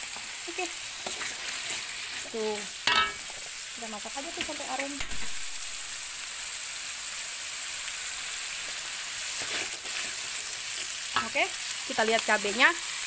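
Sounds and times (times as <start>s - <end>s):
spice paste sizzling in oil: 0.0s - 13.0s
wooden spatula scraping: 1.0s - 2.4s, 9.3s - 10.5s.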